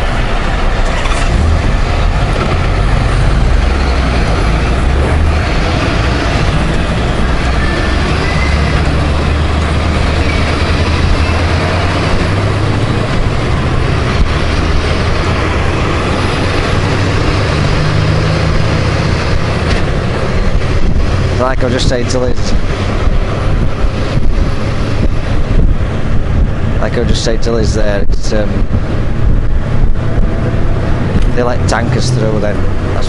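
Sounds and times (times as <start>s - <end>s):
motorcycle engine: 0.0s - 21.6s
road and wind rumble: 0.0s - 33.0s
surrounding traffic: 0.0s - 33.0s.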